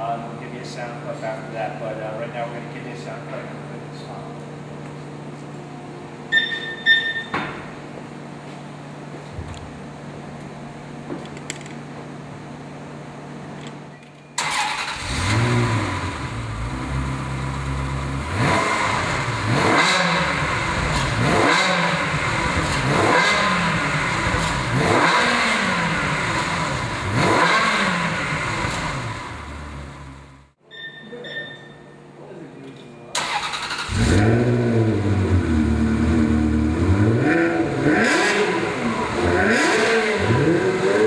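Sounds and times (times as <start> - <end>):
car engine starting and revving: 14.4 - 30.5, 33.2 - 41.0.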